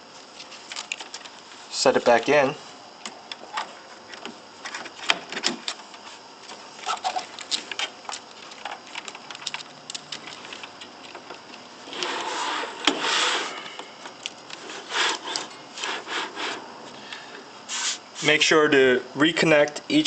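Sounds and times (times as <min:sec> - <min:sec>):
scraping and rubbing: 0:06.8 - 0:09.0, 0:11.9 - 0:13.8, 0:14.6 - 0:16.7, 0:17.7 - 0:18.3
plastic and metal parts clicking: 0:06.9 - 0:11.4.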